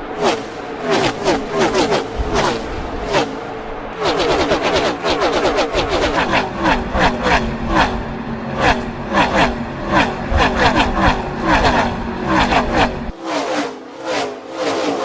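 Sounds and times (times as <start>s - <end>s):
race cars passing at speed: 0.0s - 15.0s.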